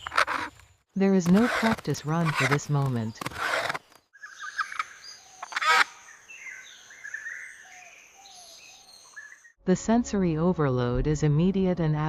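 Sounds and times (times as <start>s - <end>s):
birds chirping and calling: 1.2s - 9.6s.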